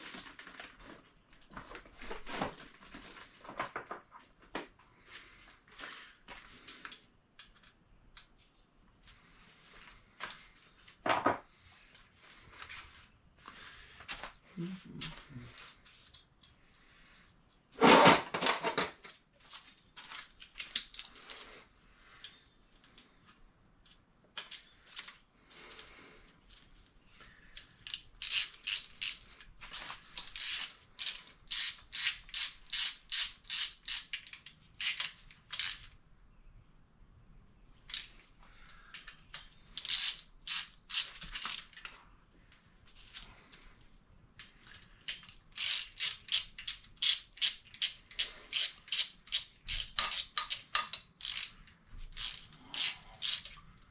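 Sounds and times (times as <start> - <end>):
ratchet wrench clicking: 27.8 - 29.2, 30.4 - 35.0, 39.8 - 41.6, 45.5 - 51.5, 52.1 - 53.6.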